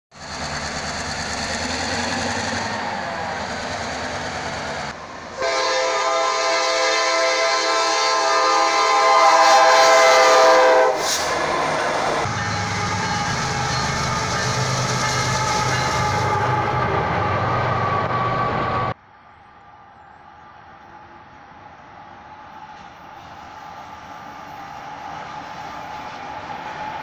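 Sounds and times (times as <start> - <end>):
diesel train rumbling: 0.1 - 27.0
locomotive horn: 5.4 - 18.0.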